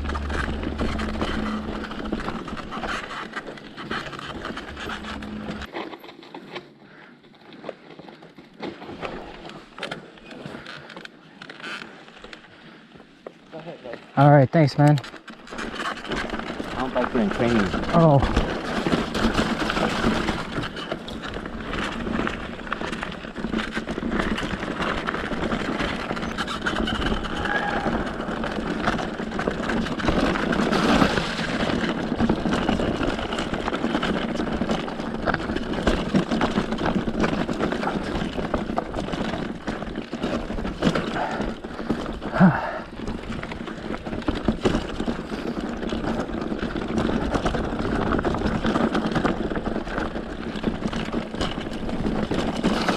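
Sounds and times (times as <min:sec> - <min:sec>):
tyre and wind noise: 0:00.0 - 0:05.8, 0:14.8 - 0:52.9
bike rattles and knocks: 0:00.0 - 0:06.8, 0:14.8 - 0:52.9.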